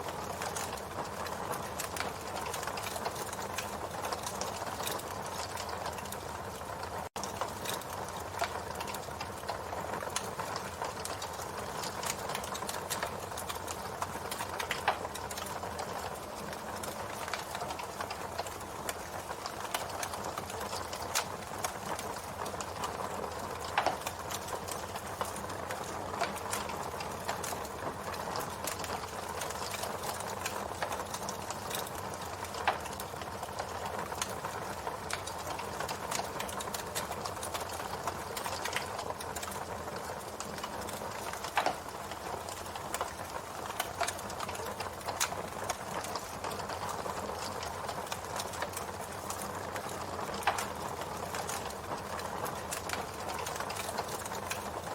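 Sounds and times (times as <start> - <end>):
burning wood crackling and popping: 0.0 - 54.9.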